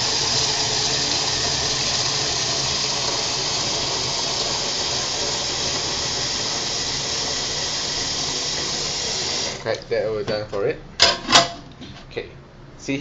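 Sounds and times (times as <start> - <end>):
water running into kettle: 0.0 - 9.9.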